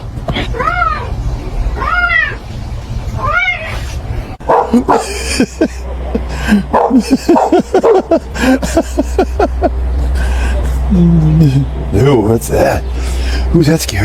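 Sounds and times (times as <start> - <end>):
cat meowing: 0.3 - 1.2, 1.8 - 2.4, 3.2 - 3.9
dog barking and yipping: 4.4 - 5.2, 6.7 - 8.2.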